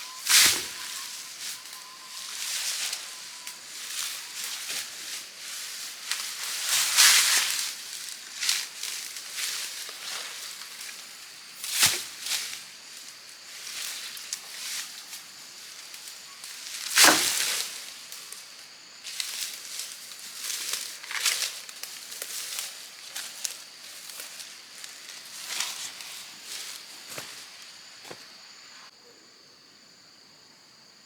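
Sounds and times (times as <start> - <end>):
dry leaves crackling and rustling: 0.0 - 28.3.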